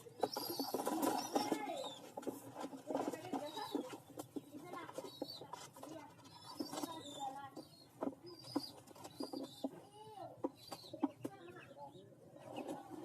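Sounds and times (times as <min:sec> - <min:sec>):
pigeons cooing: 0:00.0 - 0:04.0, 0:10.4 - 0:13.0.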